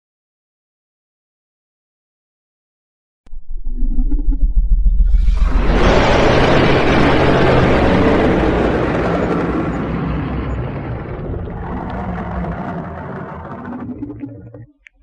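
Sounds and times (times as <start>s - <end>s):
low rumble: 3.3s - 15.0s
dragon roar effect: 5.1s - 14.5s.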